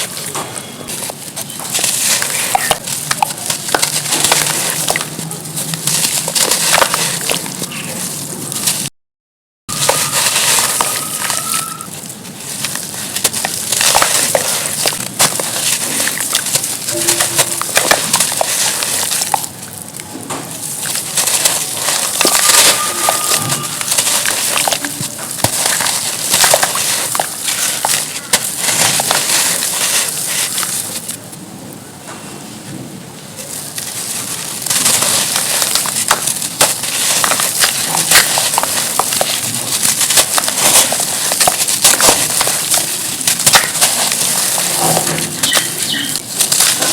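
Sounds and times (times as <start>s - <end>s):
charcoal crunching by hand: 0.0s - 8.9s, 9.7s - 31.4s, 33.4s - 46.9s.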